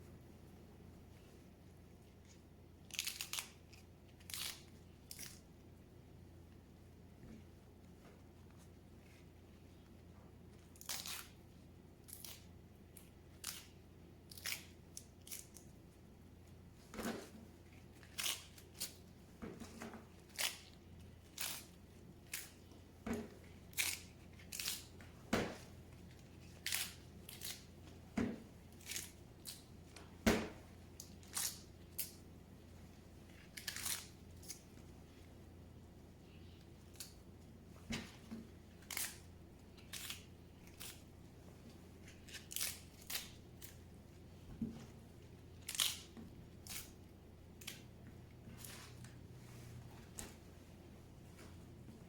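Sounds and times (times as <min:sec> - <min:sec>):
knife cutting crisp leaves: 0:02.9 - 0:05.4, 0:10.7 - 0:11.4, 0:18.0 - 0:19.0, 0:19.6 - 0:22.6, 0:23.7 - 0:29.6, 0:33.4 - 0:34.6, 0:38.8 - 0:39.2, 0:39.8 - 0:41.0, 0:42.0 - 0:43.8, 0:45.6 - 0:47.0.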